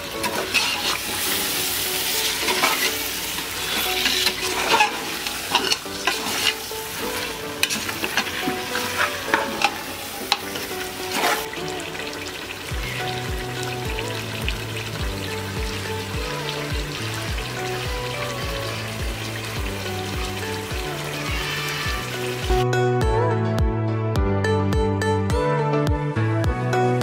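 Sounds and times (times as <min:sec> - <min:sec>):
meat sizzling in a pot: 0:00.0 - 0:22.6
spoon knocking and scraping pot: 0:03.7 - 0:06.6.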